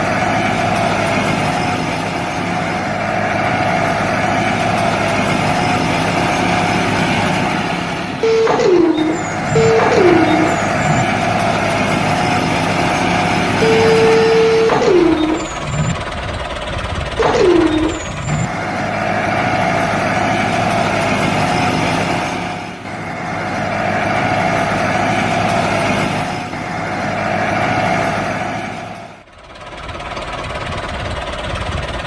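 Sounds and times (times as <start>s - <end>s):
short falling tones: 8.2s - 11.2s, 13.6s - 16.0s, 17.2s - 18.5s.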